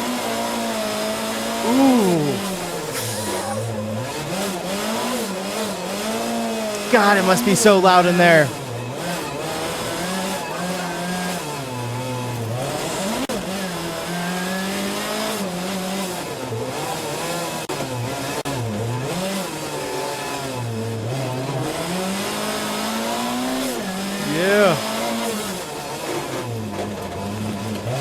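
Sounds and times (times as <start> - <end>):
rally car engine revving: 2.4 - 6.9, 8.5 - 28.0.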